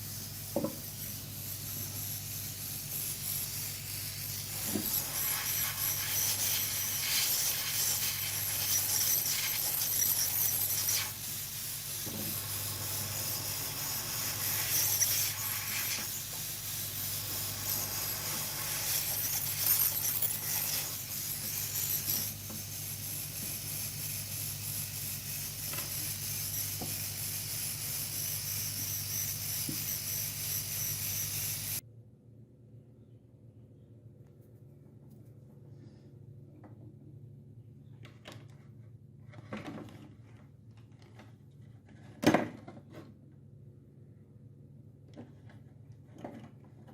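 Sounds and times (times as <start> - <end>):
steady hiss: 0.0 - 31.8
low electrical hum: 0.0 - 46.9.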